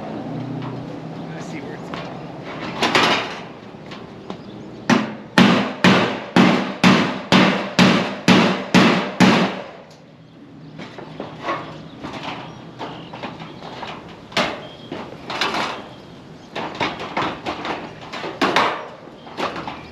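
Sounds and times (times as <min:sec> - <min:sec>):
hammer striking: 0:04.9 - 0:09.8.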